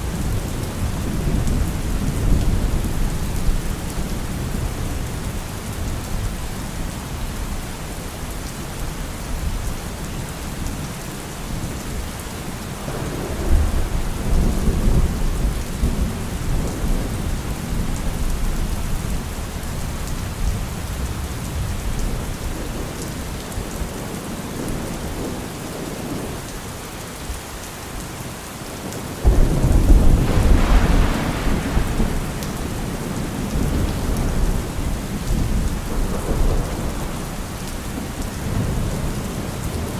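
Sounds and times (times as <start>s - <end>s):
heavy rain falling: 0.0s - 39.9s
thunder rumbling: 12.8s - 19.2s, 29.2s - 39.9s.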